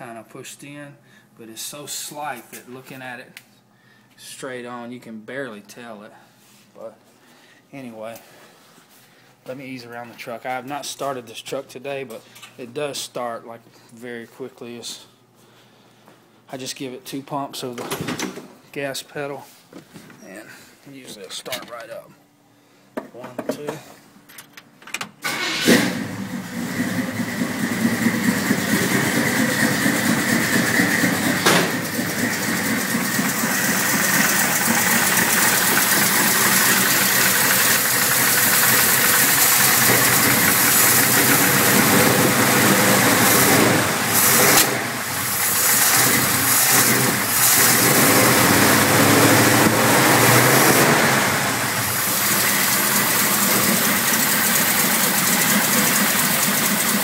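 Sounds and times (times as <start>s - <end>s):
truck engine starting and idling: 25.2s - 57.0s.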